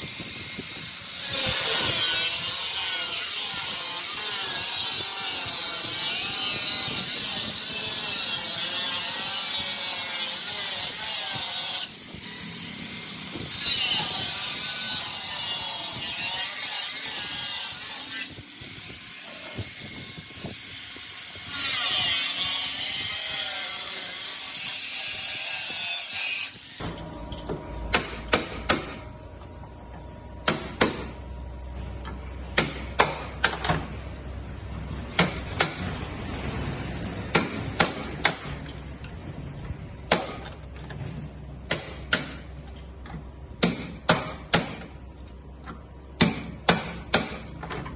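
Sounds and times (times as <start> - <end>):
power tool grinding metal: 0.0 - 26.8.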